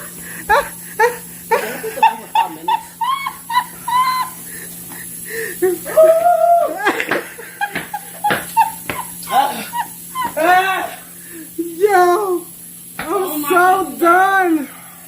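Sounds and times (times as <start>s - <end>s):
people laughing: 0.0s - 11.0s
long high cry: 2.7s - 4.5s, 5.6s - 7.0s, 8.6s - 11.1s.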